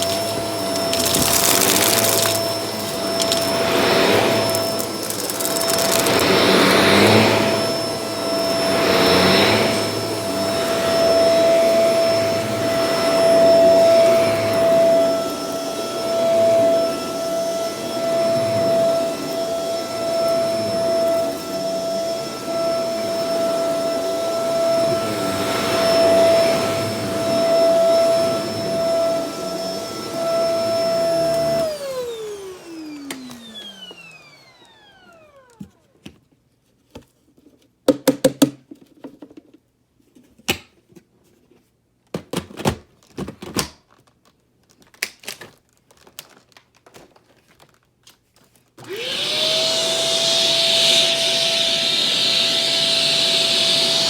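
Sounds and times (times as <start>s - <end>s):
motor spinning down: 0.0s - 7.9s
vacuum cleaner whining: 0.0s - 36.2s, 48.8s - 54.0s.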